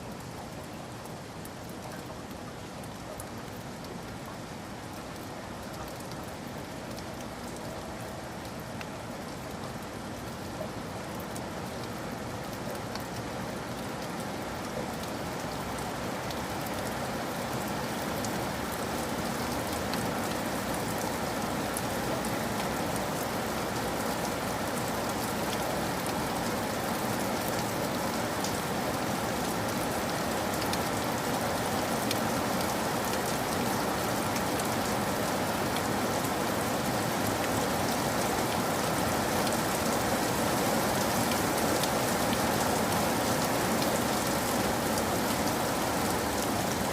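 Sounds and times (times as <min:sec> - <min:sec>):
rain falling: 0:00.0 - 0:46.9.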